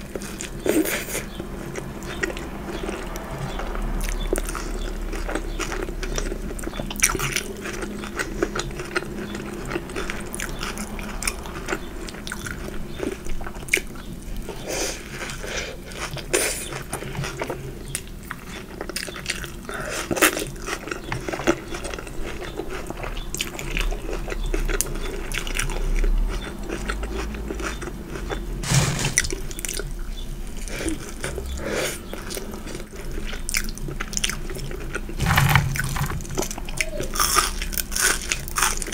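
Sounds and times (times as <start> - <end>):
person chewing food: 0.0 - 28.6, 29.2 - 38.9
crunching: 34.2 - 38.9.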